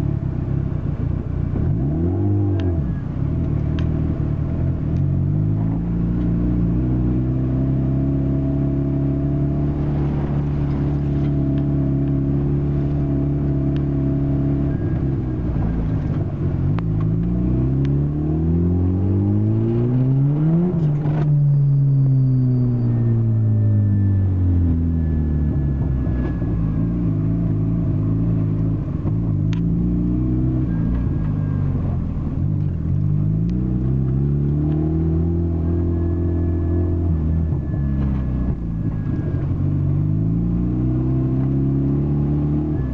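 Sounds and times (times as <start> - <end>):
car engine revving: 0.0 - 42.9
faint high whistles: 21.4 - 26.9.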